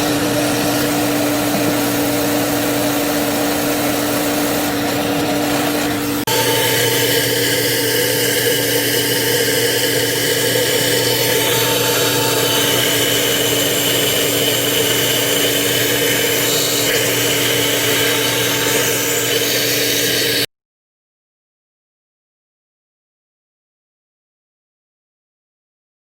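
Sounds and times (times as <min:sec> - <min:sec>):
machine whirring: 0:00.0 - 0:20.5.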